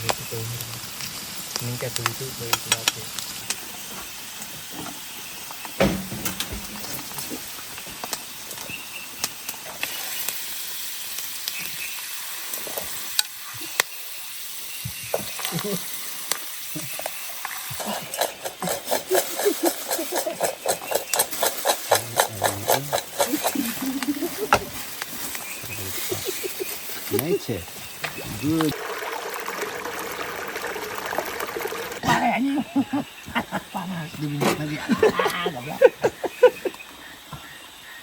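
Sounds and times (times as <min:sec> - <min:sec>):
food sizzling in hot oil: 0:00.0 - 0:32.0
heavy knock: 0:05.8 - 0:06.9
utensil clicking and scraping: 0:17.8 - 0:25.1.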